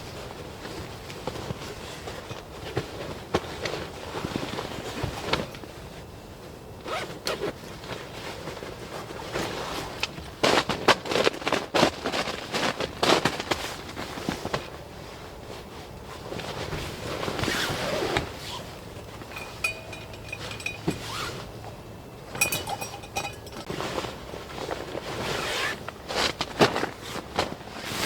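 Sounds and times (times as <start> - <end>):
camping gear rustling: 16.5 - 23.9
sharp clicks and light clinks: 19.2 - 23.7.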